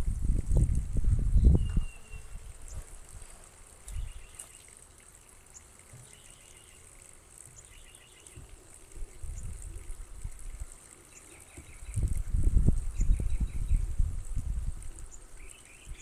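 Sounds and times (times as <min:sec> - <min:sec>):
low rumble on microphone: 0:00.0 - 0:04.3, 0:08.4 - 0:10.8, 0:11.6 - 0:15.1
small birds chirping: 0:01.3 - 0:02.9, 0:03.8 - 0:09.9, 0:10.6 - 0:12.2, 0:12.8 - 0:14.0, 0:14.9 - 0:16.0.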